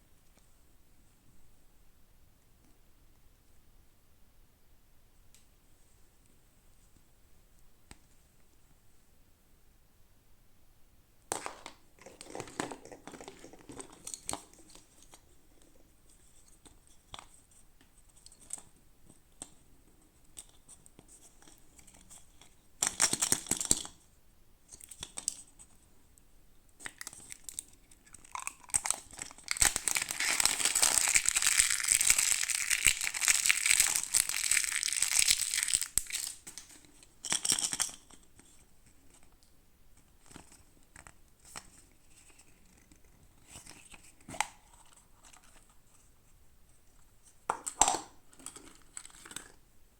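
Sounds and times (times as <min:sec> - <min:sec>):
packaging tearing and crinkling: 0:28.3 - 0:36.4.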